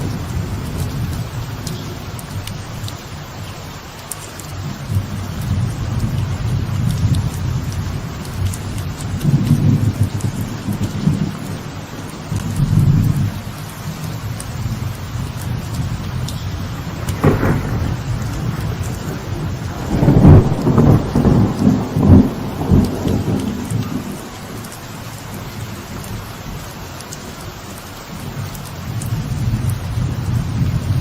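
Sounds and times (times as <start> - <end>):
rolling thunder rumble: 0.0 - 3.0, 4.6 - 26.7, 28.2 - 31.0
light rain falling: 0.0 - 31.0
thunder crack: 15.8 - 25.0.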